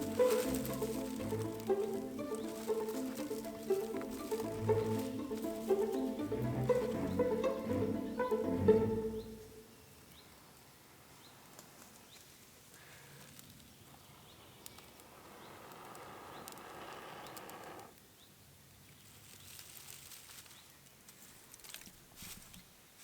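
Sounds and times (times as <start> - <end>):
high rustling hiss: 0.0 - 8.4, 12.7 - 17.9
small clicks: 14.6 - 18.0.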